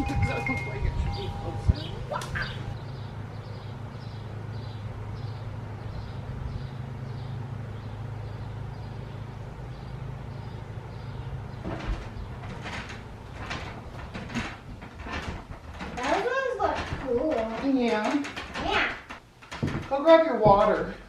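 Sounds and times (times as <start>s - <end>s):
low mechanical hum: 0.0s - 21.0s
rustling: 11.6s - 21.0s.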